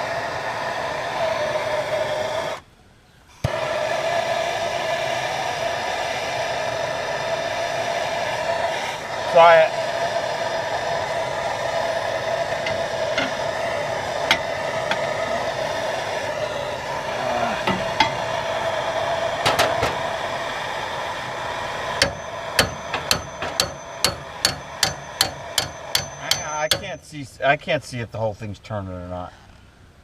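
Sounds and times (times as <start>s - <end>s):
steady hissing: 0.0s - 28.3s
hammer blows on metal: 12.5s - 15.2s, 17.6s - 18.5s, 22.0s - 27.2s.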